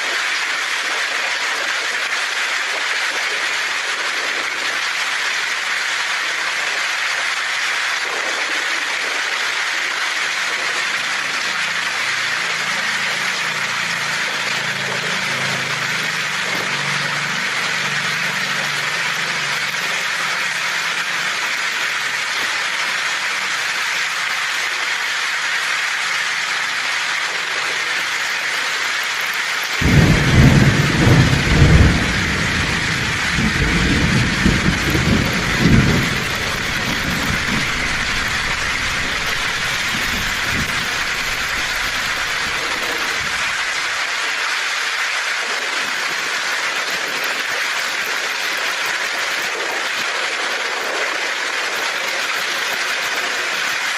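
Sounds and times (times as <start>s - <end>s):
heavy rain on a tin roof: 0.0s - 53.9s
thunder rumbling: 29.8s - 43.8s.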